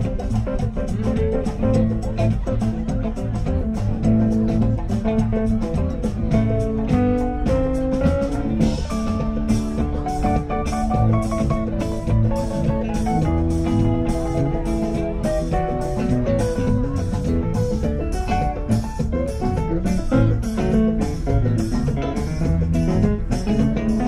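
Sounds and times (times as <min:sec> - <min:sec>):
drum kit beat: 0:00.0 - 0:24.0
electric guitar: 0:00.0 - 0:24.0.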